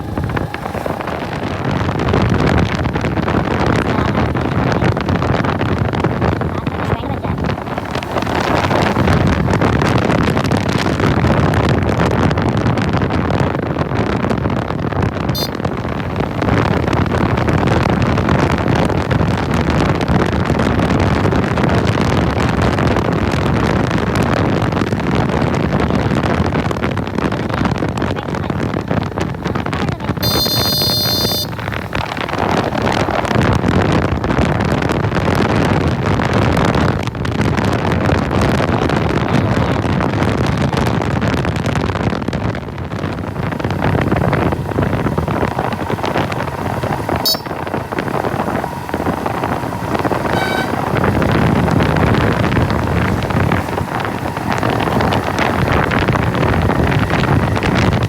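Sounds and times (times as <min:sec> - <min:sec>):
motorcycle engine running: 0:00.0 - 0:58.0
wind rush on microphone: 0:00.0 - 0:58.0
high-pitched ringing tone: 0:30.2 - 0:31.5, 0:47.2 - 0:47.6.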